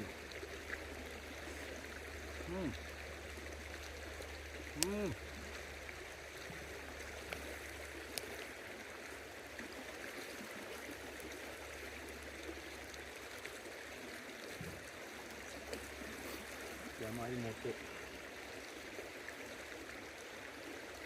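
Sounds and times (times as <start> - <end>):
river water flowing: 0.0 - 21.0
faint clicks: 4.7 - 5.0, 7.2 - 8.5.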